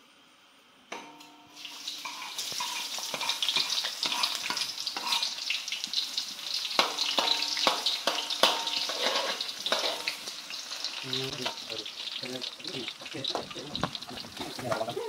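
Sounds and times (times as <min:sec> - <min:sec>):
food sizzling in hot oil: 0:01.5 - 0:15.0
spatula scraping wok: 0:01.6 - 0:12.1.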